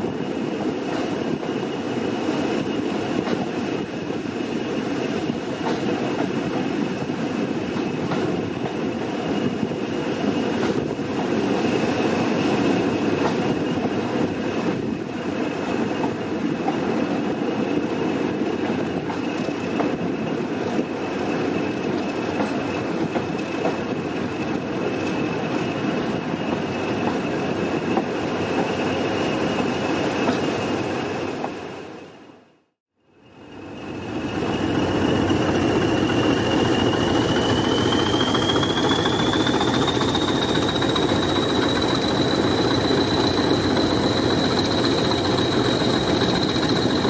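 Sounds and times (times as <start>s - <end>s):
clickety-clack over rail joints: 0.0s - 30.6s, 34.9s - 47.0s
train wheels rumbling on rail: 0.0s - 32.1s, 33.2s - 47.0s
high wheel squeal: 33.3s - 47.0s.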